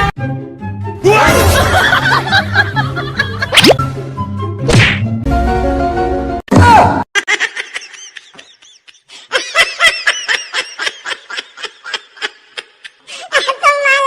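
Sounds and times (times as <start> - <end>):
high-pitched giggling laughter: 7.2 - 14.0.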